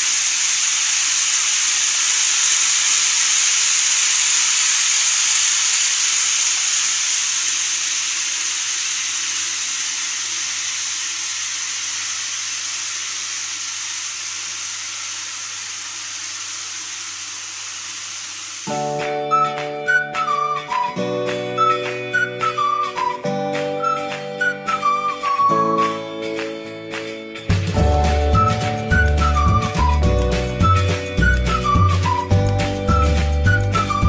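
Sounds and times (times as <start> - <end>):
model train rolling on track: 0.0 - 18.9.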